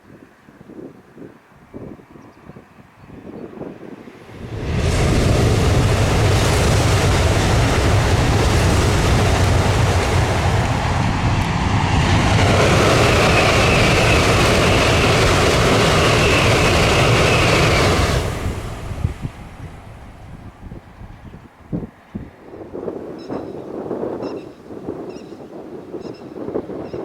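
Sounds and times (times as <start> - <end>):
train rushing past: 3.8 - 23.0
high whine: 4.3 - 20.8.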